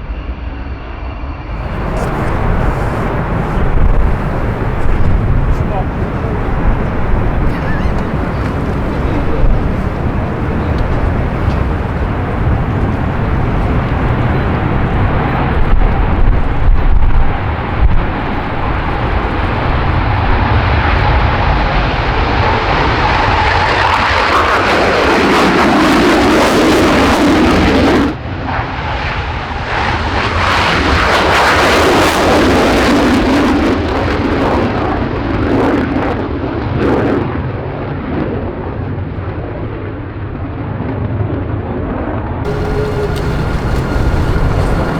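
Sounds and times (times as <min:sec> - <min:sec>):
jet aircraft taking off: 0:01.5 - 0:28.2, 0:42.5 - 0:44.9.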